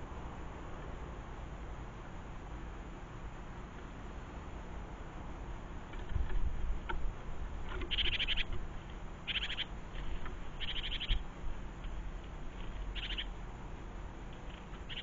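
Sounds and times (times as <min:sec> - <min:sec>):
low steady rumble: 0:00.0 - 0:15.0
songbird rattling call: 0:07.8 - 0:08.6, 0:09.2 - 0:12.0, 0:12.7 - 0:13.4, 0:14.6 - 0:15.0.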